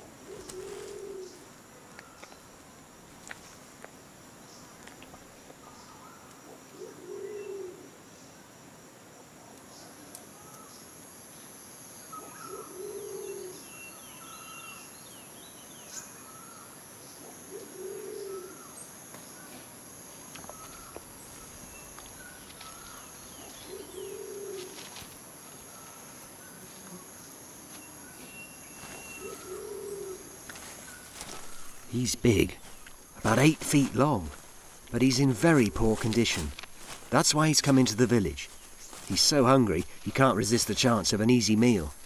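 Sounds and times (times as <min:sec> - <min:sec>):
high-pitched insect whine: 0:00.0 - 0:08.6, 0:09.8 - 0:42.0
faint bird and insect chirps: 0:00.0 - 0:42.0
bird cooing: 0:00.1 - 0:02.2, 0:05.6 - 0:08.0, 0:12.1 - 0:14.8, 0:17.2 - 0:18.8, 0:20.4 - 0:25.0, 0:27.8 - 0:32.0.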